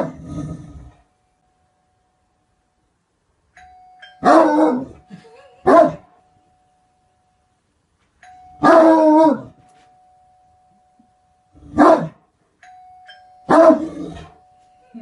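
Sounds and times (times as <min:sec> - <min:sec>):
dog barking loudly: 0:05.7 - 0:06.0, 0:11.8 - 0:12.2.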